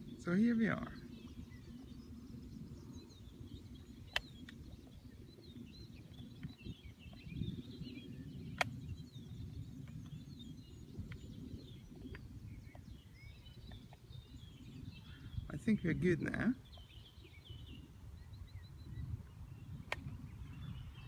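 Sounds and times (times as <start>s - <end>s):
small birds chirping: 0.0s - 21.0s
sharp clicks: 4.1s - 4.6s, 8.5s - 8.8s, 19.8s - 20.1s.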